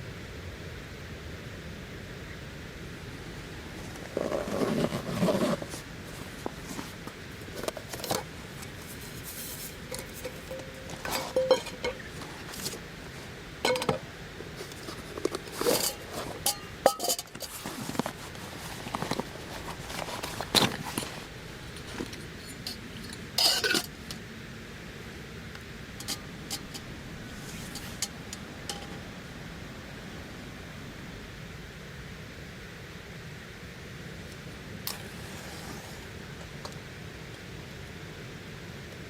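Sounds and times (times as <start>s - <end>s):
utensils and dishes clinking: 9.6s - 12.7s, 13.7s - 14.0s, 15.7s - 17.6s, 23.4s - 23.9s.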